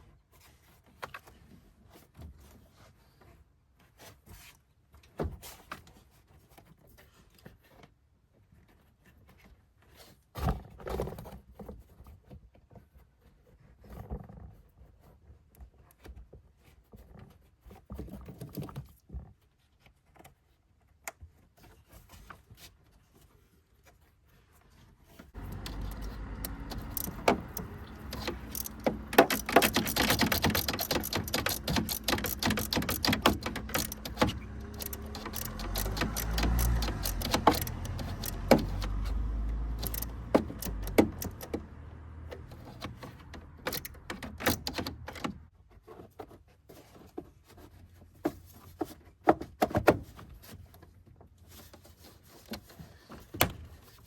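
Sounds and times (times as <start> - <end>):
metal tools clinking and rattling: 25.4 - 38.8.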